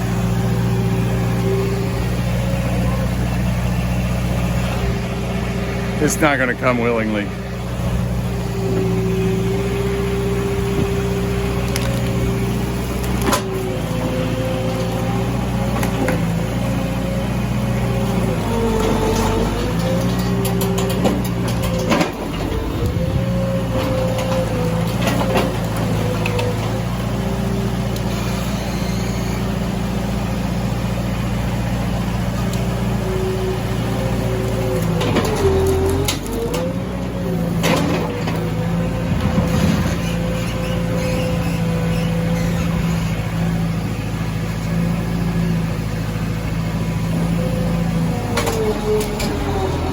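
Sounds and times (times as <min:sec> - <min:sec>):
engine running: 0:00.0 - 0:49.9.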